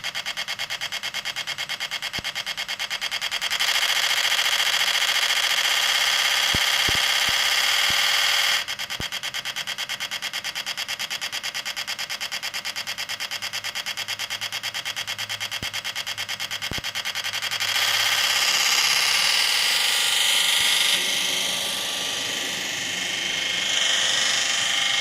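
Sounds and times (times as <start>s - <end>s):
diesel engine sound from small speaker: 14.8s - 25.0s.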